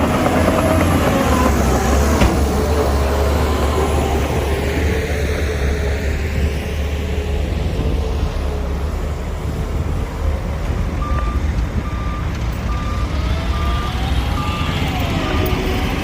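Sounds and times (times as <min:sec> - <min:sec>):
diesel engine running: 0:00.0 - 0:16.0
reversing alarm beeping: 0:11.0 - 0:15.6.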